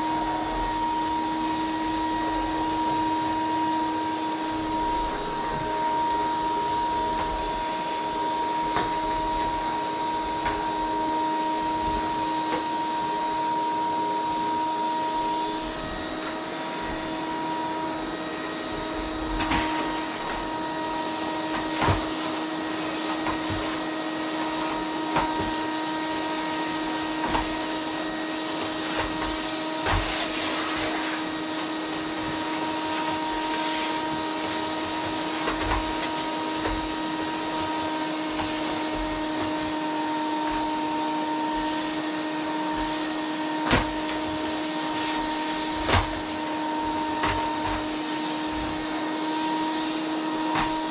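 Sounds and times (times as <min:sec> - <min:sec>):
vacuum cleaner running: 0:00.0 - 0:50.9.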